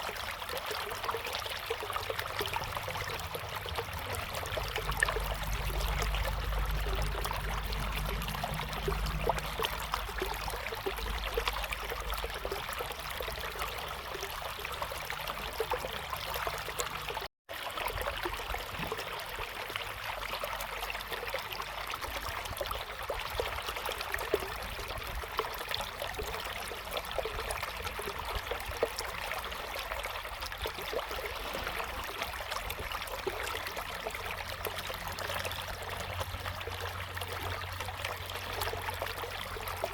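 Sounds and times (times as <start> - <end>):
river water flowing over stones: 0.0 - 39.9
low rumble: 2.5 - 12.2.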